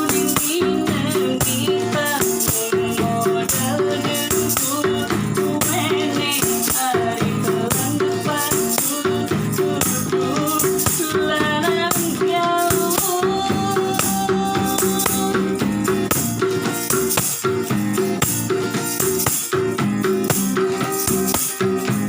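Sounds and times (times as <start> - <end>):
busker song: 0.0 - 16.2
hand-shaken rattle rhythm: 0.0 - 22.0.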